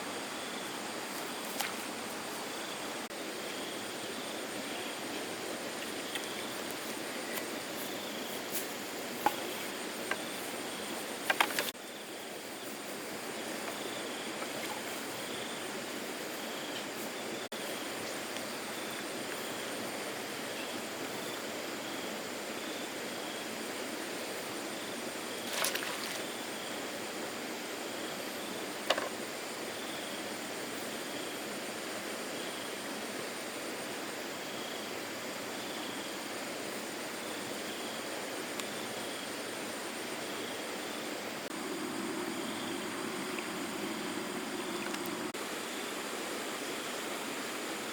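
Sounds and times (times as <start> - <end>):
brief splashes or knocks: 25.4 - 26.3
floodwater rushing: 25.4 - 26.5.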